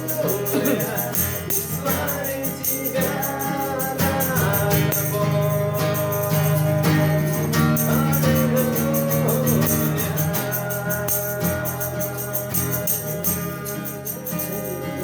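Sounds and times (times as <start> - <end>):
jingling tambourine rhythm: 0.0 - 15.0.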